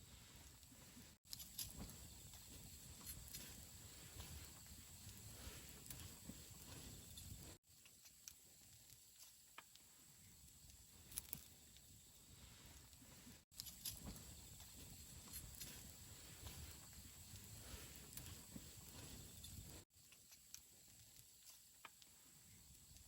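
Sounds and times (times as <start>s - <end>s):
campfire crackling: 0.4s - 7.6s, 10.4s - 19.8s.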